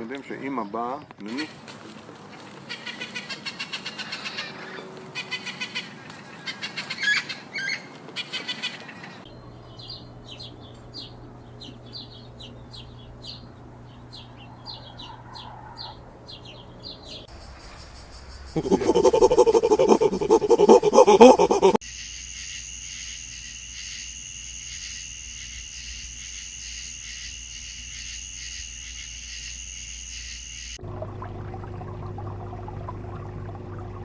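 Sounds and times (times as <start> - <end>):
loud low animal call: 14.0 - 16.5
high-pitched animal chirping: 14.1 - 17.2.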